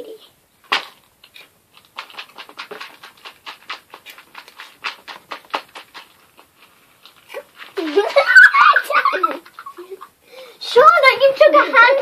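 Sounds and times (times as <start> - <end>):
child crunching food noisily: 1.2 - 8.2.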